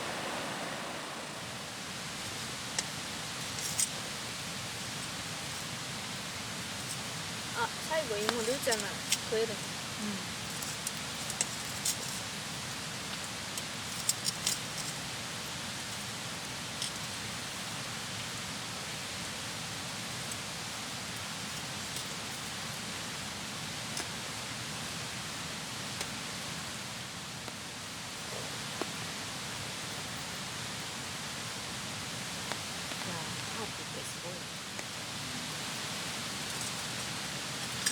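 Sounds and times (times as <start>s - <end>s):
rain falling: 0.0s - 37.9s.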